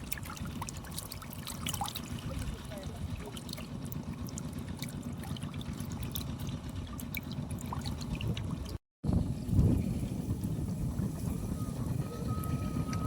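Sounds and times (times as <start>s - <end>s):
muddy water sloshing: 0.0s - 8.8s
steady low rumble: 0.0s - 13.0s.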